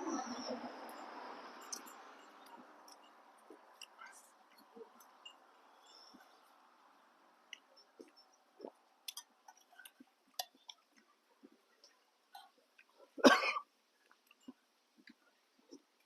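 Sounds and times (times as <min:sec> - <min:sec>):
person eating noodles: 0:07.4 - 0:13.2
loud cough: 0:13.2 - 0:13.6.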